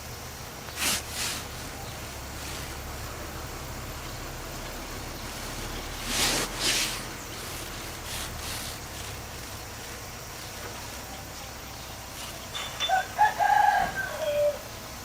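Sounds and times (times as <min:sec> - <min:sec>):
short hissing bursts: 0:00.0 - 0:11.0
bulldozer diesel engine humming: 0:00.0 - 0:15.0.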